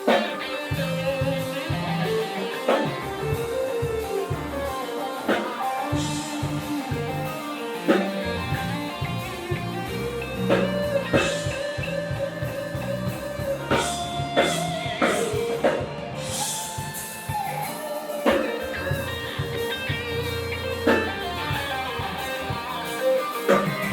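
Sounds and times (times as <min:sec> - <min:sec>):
bass guitar: 0:00.0 - 0:23.9
drum kit hits: 0:00.0 - 0:23.9
electric guitar: 0:00.0 - 0:23.9.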